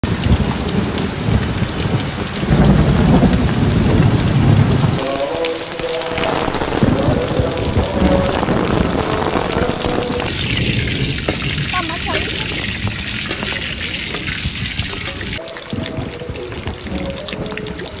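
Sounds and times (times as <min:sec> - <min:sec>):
heavy rain pouring off roof: 0:00.0 - 0:18.0
deep rumble: 0:06.2 - 0:18.0.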